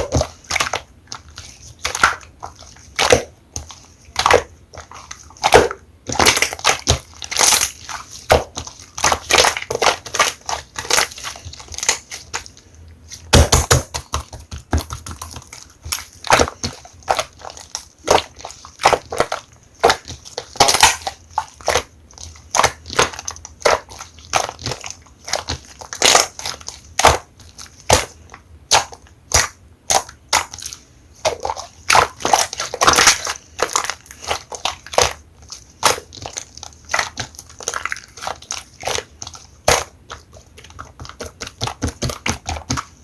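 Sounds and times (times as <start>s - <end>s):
slime clicking and popping: 13.3s - 42.9s.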